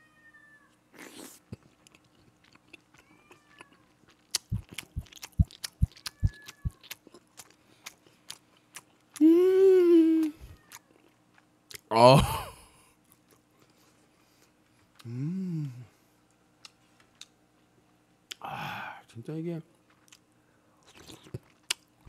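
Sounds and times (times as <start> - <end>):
open-mouthed wet chewing: 0.9 - 9.3, 20.8 - 21.9
cat meowing faintly: 6.0 - 6.9
person groaning with enjoyment: 9.2 - 10.4, 11.9 - 12.6, 15.1 - 15.9.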